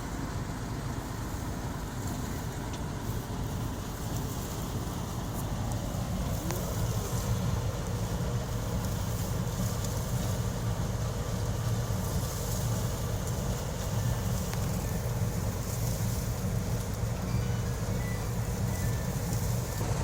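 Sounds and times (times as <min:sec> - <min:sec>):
harvester engine droning: 0:00.0 - 0:20.0.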